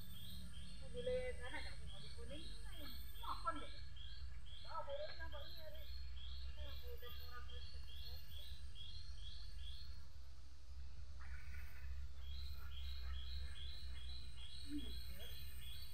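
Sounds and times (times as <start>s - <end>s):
bird chirping rhythmically: 0.0s - 10.0s, 11.2s - 15.9s
steady low rumble: 7.2s - 15.8s.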